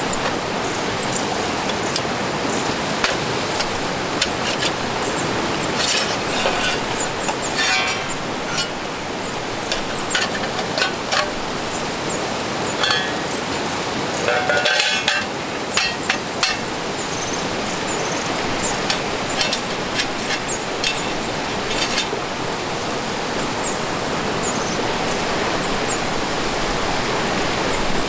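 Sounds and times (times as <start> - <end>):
light clicks and metallic clinks: 0.0 - 8.9, 9.6 - 13.5, 14.1 - 22.2.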